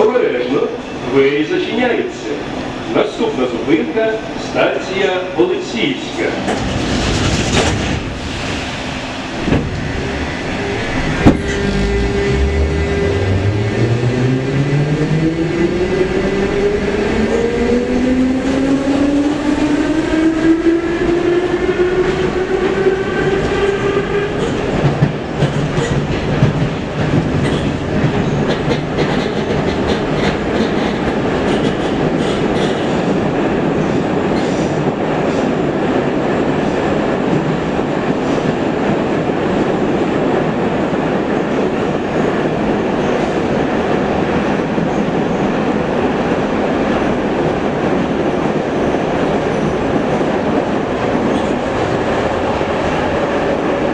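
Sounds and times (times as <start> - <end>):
train wheels rumbling on rails: 0.0 - 53.9
train traction motors whining: 9.8 - 16.2
wheels clicking over rail joints: 24.4 - 33.0.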